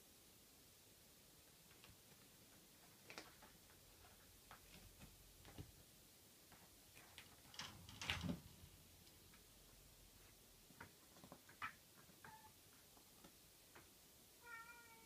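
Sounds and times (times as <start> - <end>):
faint ticks and taps: 1.6 - 5.8, 9.0 - 14.0.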